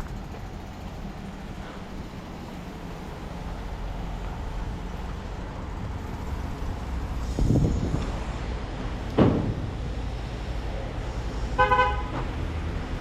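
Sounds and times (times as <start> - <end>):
vehicle engine rumbling: 0.0 - 13.0
clattering knock: 9.2 - 9.7.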